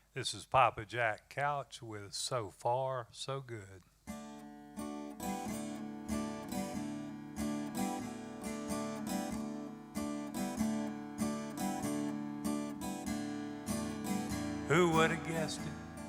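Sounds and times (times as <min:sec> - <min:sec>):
acoustic guitar strumming: 0:04.1 - 0:16.0.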